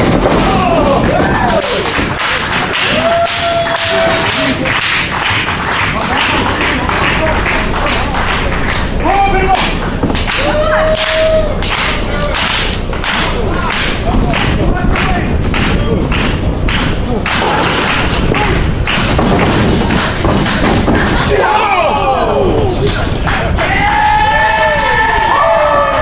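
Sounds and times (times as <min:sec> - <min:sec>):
crowd noise: 0:00.0 - 0:26.0
crowd shouting: 0:06.1 - 0:12.4, 0:20.5 - 0:26.0
wrestling slaps and thuds: 0:16.7 - 0:21.4.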